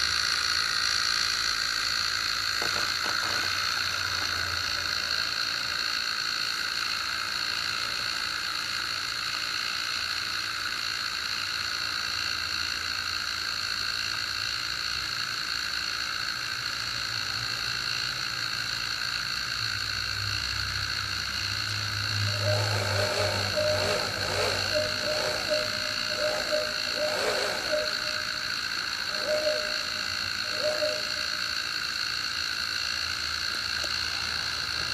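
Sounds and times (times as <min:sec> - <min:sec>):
low hum: 0:22.0 - 0:32.0.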